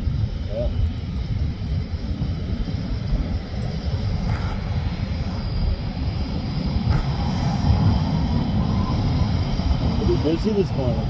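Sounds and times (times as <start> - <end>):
jet engines low rumble and whine: 0.0 - 11.0.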